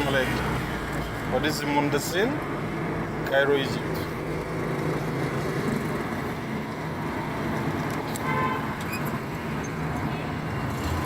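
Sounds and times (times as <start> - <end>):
city street traffic: 0.0 - 11.0
car horn toot: 8.2 - 8.8.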